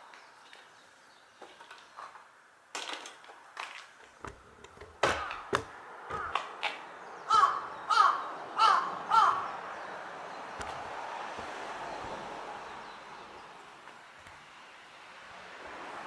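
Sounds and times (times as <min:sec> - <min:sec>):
sharp knocks: 0:04.2 - 0:06.6
bird calling: 0:07.1 - 0:10.8.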